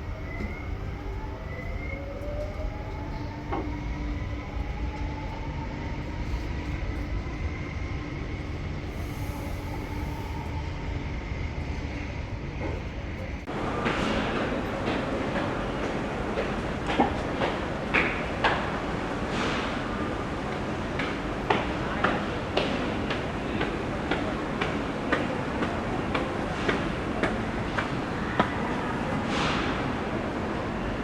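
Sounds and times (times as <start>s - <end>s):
electric train motors whining: 0.0s - 13.5s
rail rumble: 0.0s - 31.0s.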